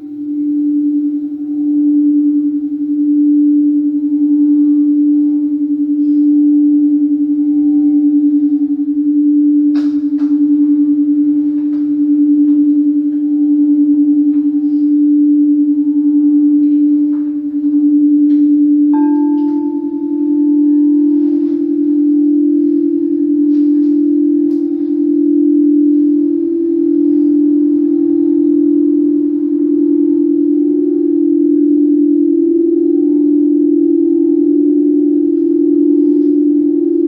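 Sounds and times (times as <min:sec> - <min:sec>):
singing bowl low tone: 0:00.0 - 0:37.0
higher singing bowl note: 0:16.6 - 0:30.8.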